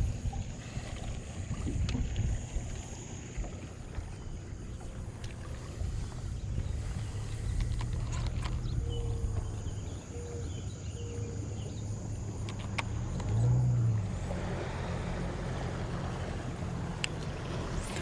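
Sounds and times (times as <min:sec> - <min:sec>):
boat motor humming: 0:00.0 - 0:18.0
rough wash of noise: 0:12.6 - 0:18.0.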